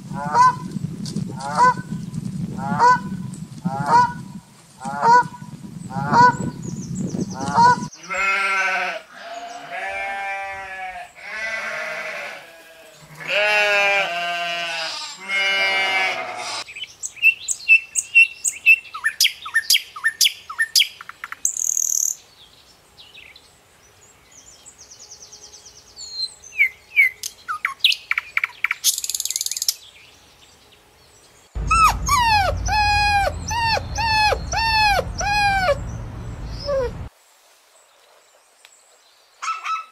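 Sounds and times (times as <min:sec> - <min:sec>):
dense chirping: 0:31.6 - 0:37.1
wavering animal calls: 0:31.6 - 0:37.1.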